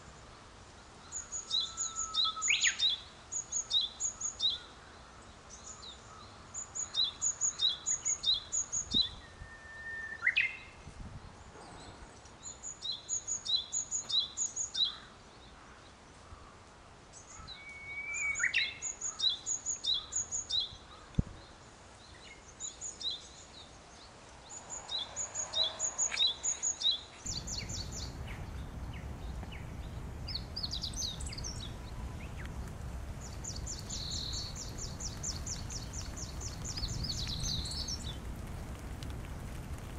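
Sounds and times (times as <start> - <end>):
background rumble: 24.4 - 39.9
bird chips: 27.3 - 39.9.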